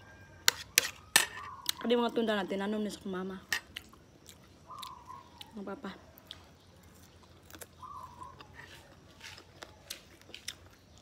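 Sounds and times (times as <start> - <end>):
chewing dried fish: 3.7 - 11.0.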